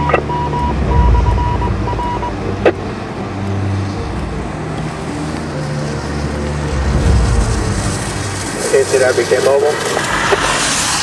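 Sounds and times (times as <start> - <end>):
high beeps: 0.0 - 2.8
car road and engine rumble: 0.0 - 11.0.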